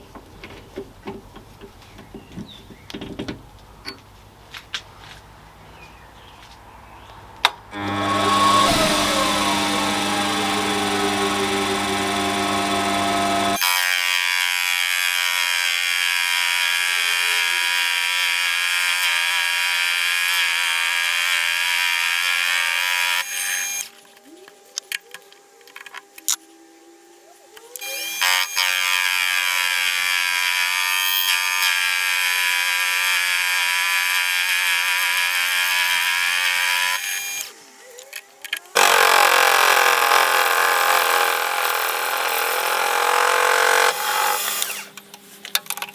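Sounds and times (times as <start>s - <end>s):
lathe running with high whine: 7.8s - 13.6s.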